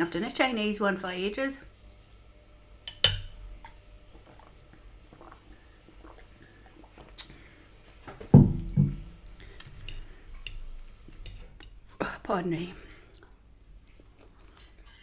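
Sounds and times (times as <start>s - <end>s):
cutlery clinking against plate: 2.9s - 3.8s.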